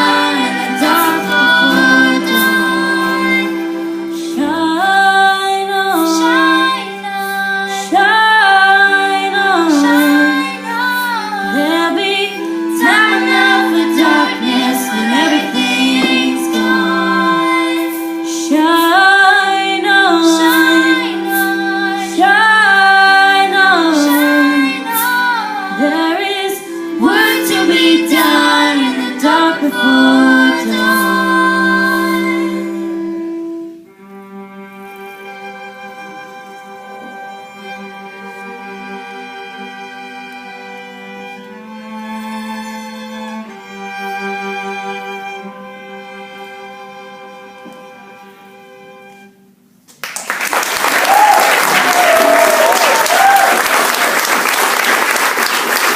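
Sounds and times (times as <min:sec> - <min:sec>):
female voices singing: 0:00.0 - 0:32.9
steady held notes: 0:00.0 - 0:49.8.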